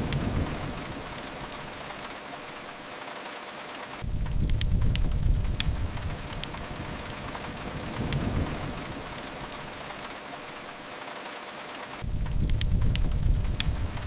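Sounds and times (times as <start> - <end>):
steady rain hiss: 0.0 - 14.0
low rumble: 4.0 - 9.9, 12.0 - 14.0.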